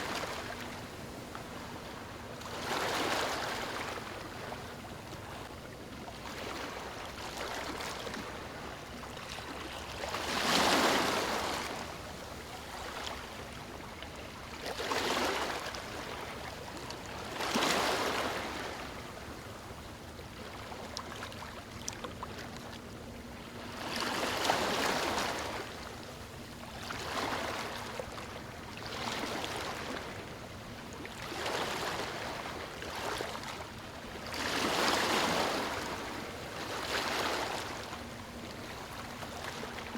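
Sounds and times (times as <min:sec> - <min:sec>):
waves splashing: 0:10.0 - 0:11.9, 0:34.3 - 0:39.9.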